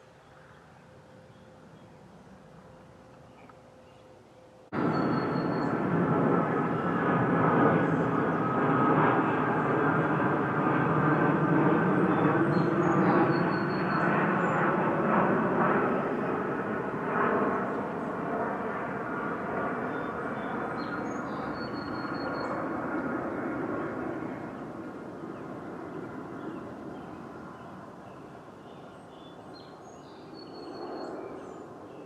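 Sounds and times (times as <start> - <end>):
songbirds chirping: 0.0 - 5.9, 19.6 - 32.0
airplane droning overhead: 0.0 - 32.0.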